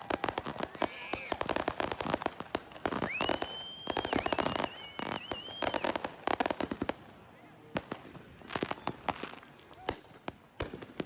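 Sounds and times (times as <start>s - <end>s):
firecracker cracks and pops: 0.0s - 11.0s
high firework whistle: 2.9s - 6.0s.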